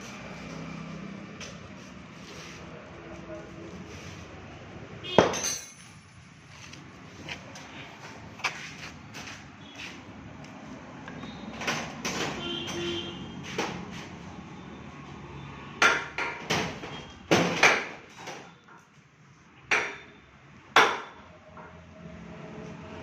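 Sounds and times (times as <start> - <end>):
sharp knocks and clanks: 5.1 - 6.1, 11.5 - 13.9, 15.8 - 18.9, 19.7 - 20.1.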